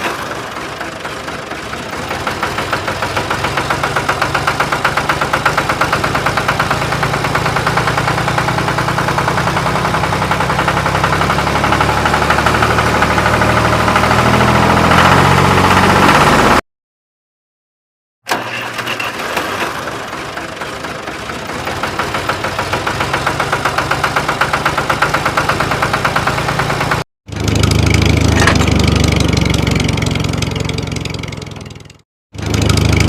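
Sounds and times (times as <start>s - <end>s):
tractor engine chugging: 0.0s - 14.7s, 18.3s - 33.0s.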